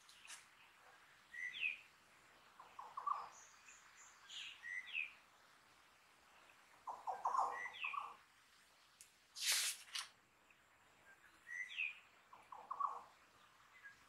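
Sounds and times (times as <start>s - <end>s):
birds chirping: 0.0s - 5.4s, 6.1s - 9.0s, 10.4s - 14.0s
rustling swish: 9.4s - 10.1s.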